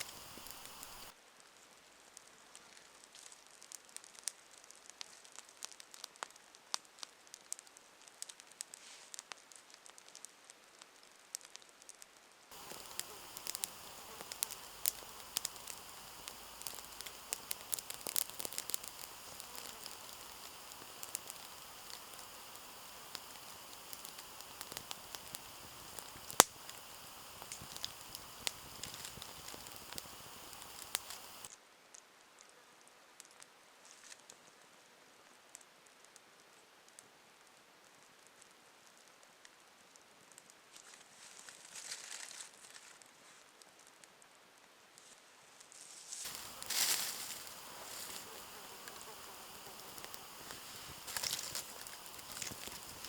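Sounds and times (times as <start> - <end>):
campfire crackling and popping: 0.0 - 1.1, 3.2 - 10.2, 12.5 - 31.5, 46.2 - 53.0.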